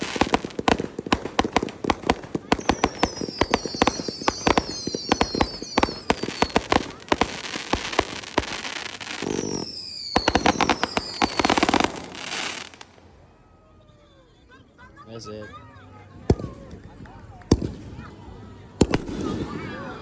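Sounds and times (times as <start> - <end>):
fireworks cracking and banging: 0.0 - 13.0, 16.2 - 20.0
firework whistles falling in pitch: 2.5 - 12.8.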